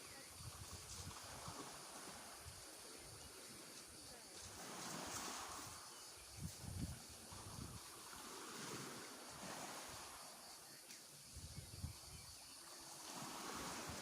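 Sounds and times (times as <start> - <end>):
faint steady hiss: 0.0 - 14.0
wind buffeting microphone: 4.6 - 10.0, 11.2 - 12.4.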